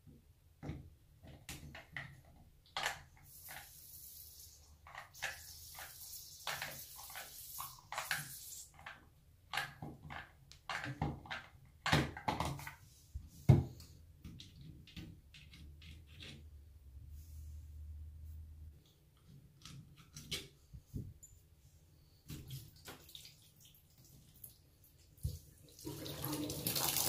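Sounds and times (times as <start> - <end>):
valve parts clicking and knocking: 8.8 - 12.7.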